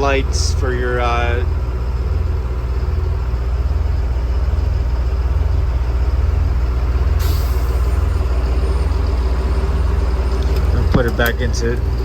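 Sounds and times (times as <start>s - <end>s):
diesel engine idling: 0.0s - 12.0s
air brake hiss: 7.2s - 8.2s.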